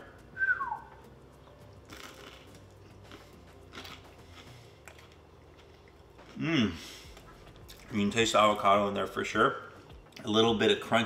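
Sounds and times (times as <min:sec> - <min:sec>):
person chewing bread: 0:01.5 - 0:08.0.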